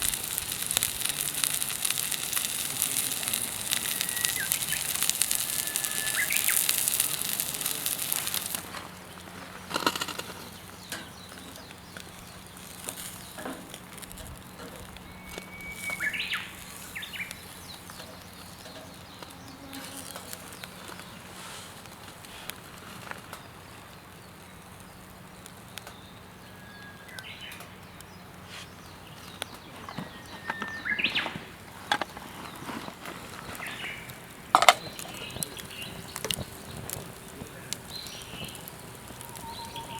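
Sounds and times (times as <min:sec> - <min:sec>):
burst of noise: 0:00.0 - 0:09.0, 0:34.5 - 0:39.9
birds chirping: 0:00.0 - 0:39.9.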